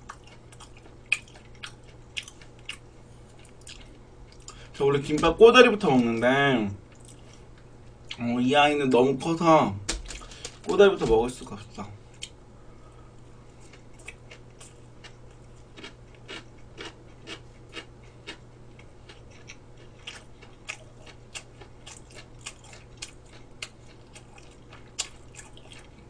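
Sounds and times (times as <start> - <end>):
crunchy chewing: 0.0 - 4.9, 6.9 - 8.2, 13.1 - 26.0
faint low hum: 0.0 - 26.0.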